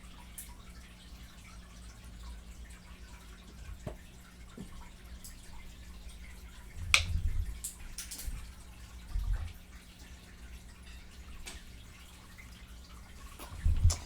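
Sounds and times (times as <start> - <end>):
faint steady hum: 0.0 - 14.0
wet mouth eating sounds: 13.2 - 14.0.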